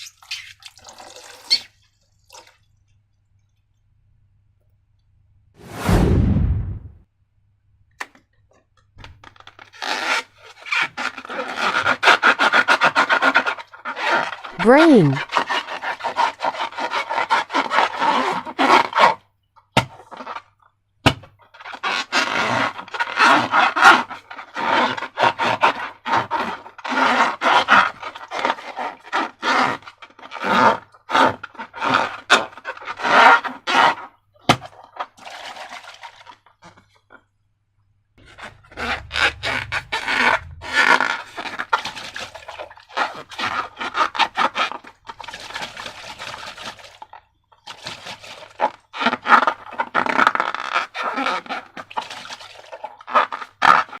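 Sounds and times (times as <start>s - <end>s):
slime rasping and scraping: 9.5s - 19.2s, 20.0s - 20.5s, 21.4s - 37.1s, 38.2s - 54.0s.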